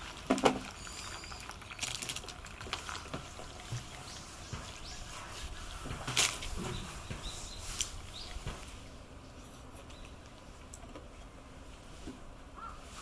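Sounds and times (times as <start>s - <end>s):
light rain pattering and dripping: 0.0s - 12.1s
high bird chirps: 3.8s - 5.8s, 6.6s - 8.5s.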